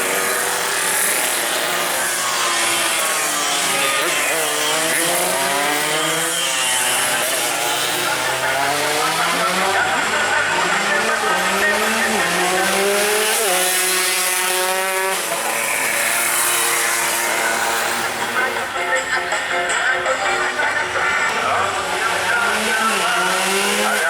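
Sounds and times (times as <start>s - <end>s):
motorcycle engines revving: 0.0s - 24.0s.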